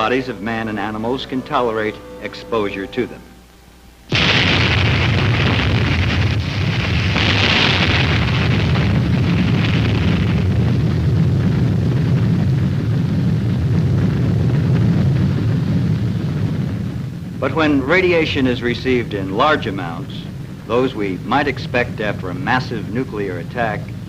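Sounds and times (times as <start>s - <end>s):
explosion roar and rumble: 4.1s - 24.0s.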